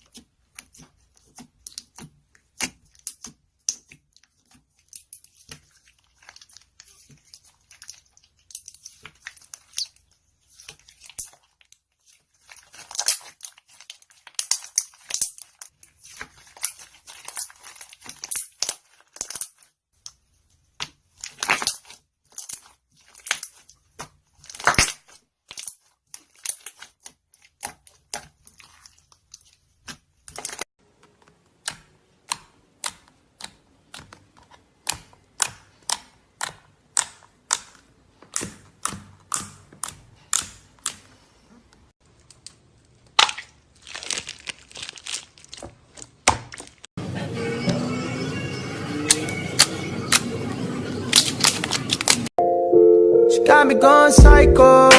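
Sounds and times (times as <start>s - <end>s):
slime squished by hand: 42.0s - 46.8s.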